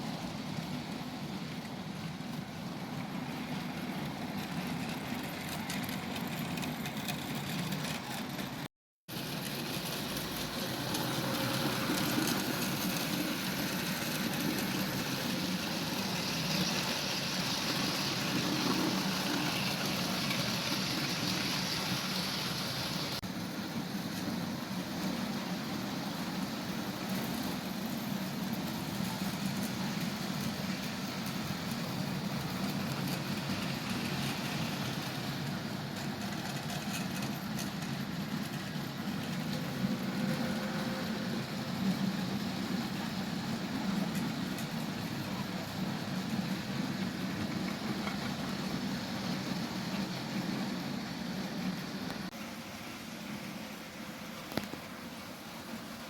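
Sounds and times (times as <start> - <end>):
model train motor whirring: 9.2 - 23.2.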